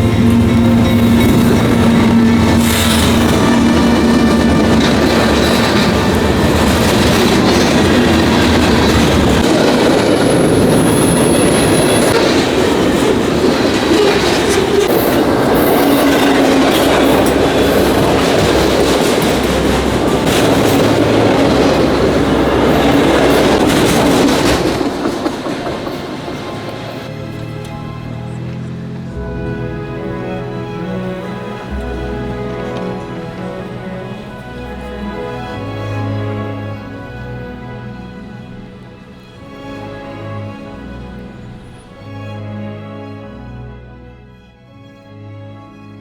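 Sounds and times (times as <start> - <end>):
mechanical rumbling and clattering: 0.0 - 35.2.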